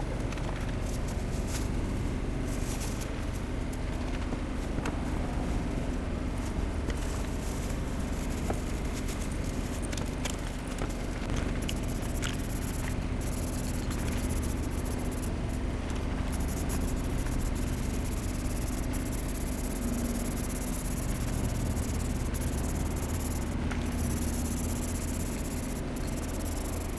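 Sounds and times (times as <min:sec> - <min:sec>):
low hum and rumble: 0:00.0 - 0:26.9
spray paint can hissing: 0:11.6 - 0:15.3, 0:16.3 - 0:26.9.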